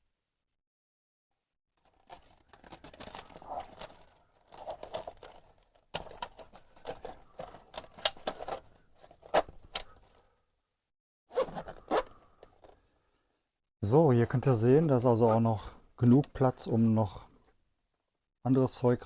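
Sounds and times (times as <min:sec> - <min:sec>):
metallic clicks and clinks: 0:02.1 - 0:08.6.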